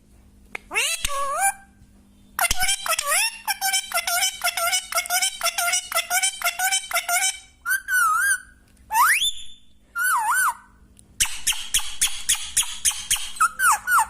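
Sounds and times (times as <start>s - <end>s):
parrot chattering chirps: 0.7s - 1.7s, 2.4s - 9.2s, 10.0s - 14.0s
parrot whistling: 5.9s - 14.0s.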